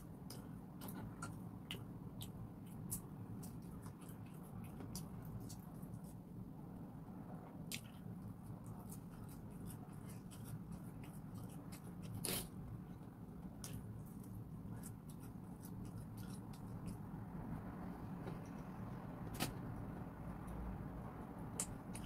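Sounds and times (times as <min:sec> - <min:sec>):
chewing and crunching food: 0:00.0 - 0:06.3, 0:07.6 - 0:17.7
low room hum: 0:00.0 - 0:22.0.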